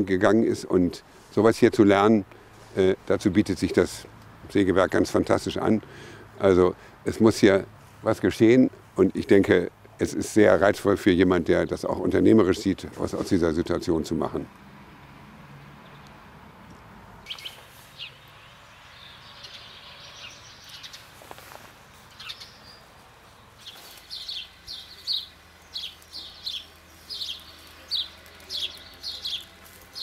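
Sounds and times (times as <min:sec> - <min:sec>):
small birds chirping: 0:17.2 - 0:30.0.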